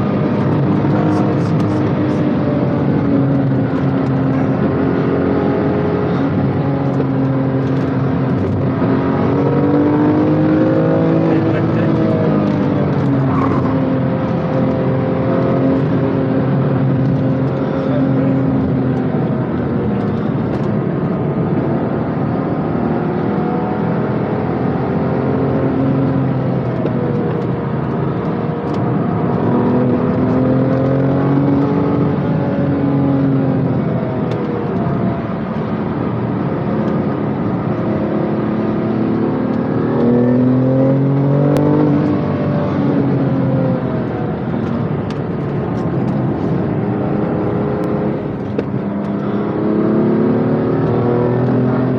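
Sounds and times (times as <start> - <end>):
car engine revving through gears: 0.0 - 51.9.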